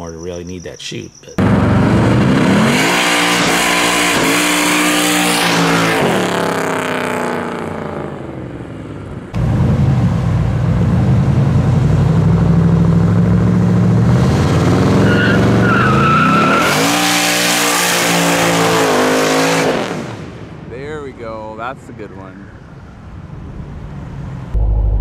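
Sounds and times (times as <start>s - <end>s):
car engine revving: 1.3s - 8.3s, 9.4s - 20.3s.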